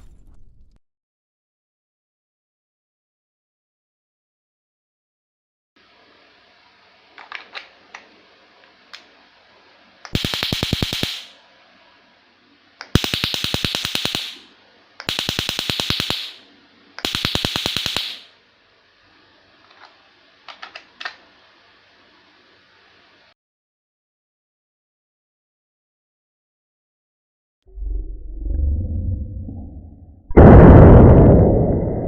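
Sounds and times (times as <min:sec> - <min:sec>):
stun gun crackling: 0:12.8 - 0:16.4.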